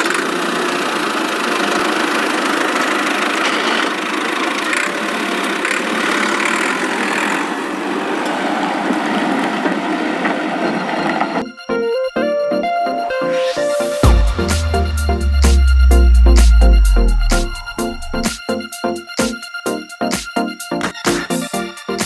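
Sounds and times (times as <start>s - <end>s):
engine idling: 14.0s - 18.3s.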